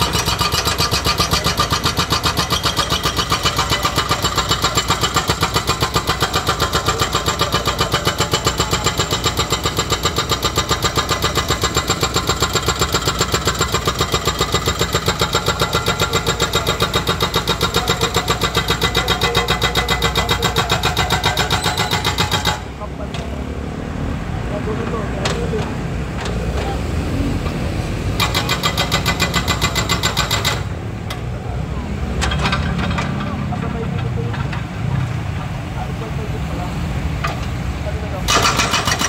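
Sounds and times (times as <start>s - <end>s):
hydraulic breaker hammering: 0.0s - 23.3s, 28.2s - 31.2s, 38.3s - 39.0s.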